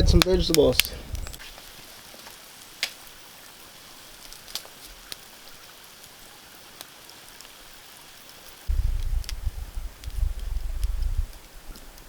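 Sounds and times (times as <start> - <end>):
campfire hissing: 0.0 - 12.0
campfire pops: 0.0 - 12.0.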